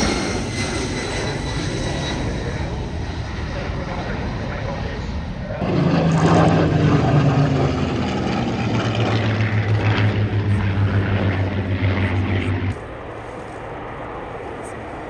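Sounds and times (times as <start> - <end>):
propeller aircraft droning: 0.0 - 15.0.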